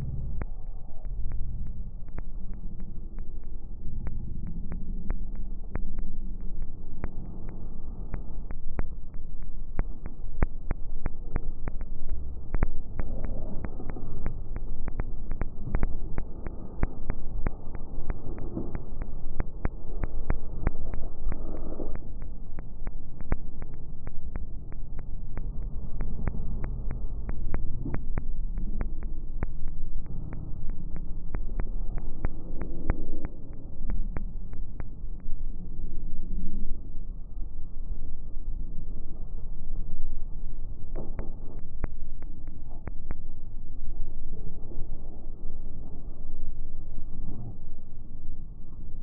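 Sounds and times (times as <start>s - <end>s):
campfire crackling and popping: 0.0s - 35.6s, 41.0s - 43.5s
low rumble: 0.0s - 49.0s.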